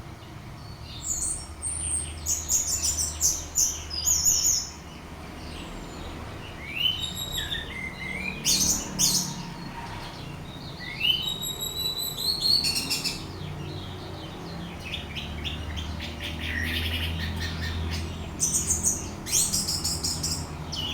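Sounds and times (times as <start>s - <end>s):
thrush singing whistles and chatter: 10.9s - 13.2s.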